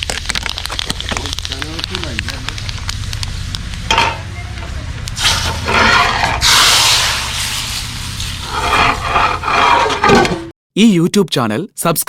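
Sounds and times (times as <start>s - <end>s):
hot oil hissing in curry: 5.2s - 9.1s.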